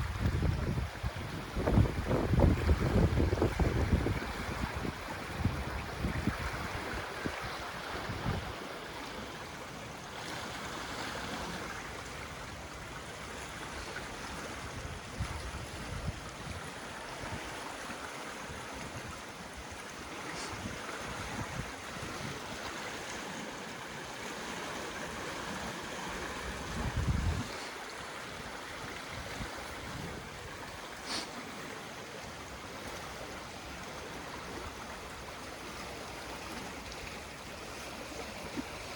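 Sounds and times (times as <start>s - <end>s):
wind buffeting microphone: 0.0s - 8.7s, 14.3s - 17.5s, 20.5s - 23.3s, 25.0s - 30.8s
river rushing: 0.0s - 38.9s.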